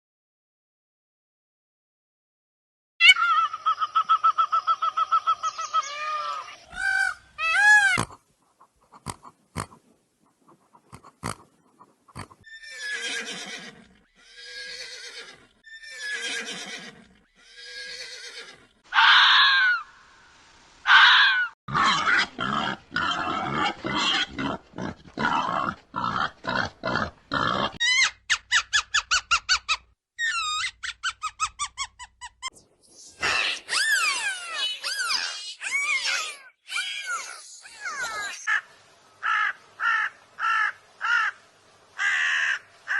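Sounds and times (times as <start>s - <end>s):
falling whinny-like calls: 3.0s - 8.0s, 12.4s - 19.9s, 33.0s - 38.6s.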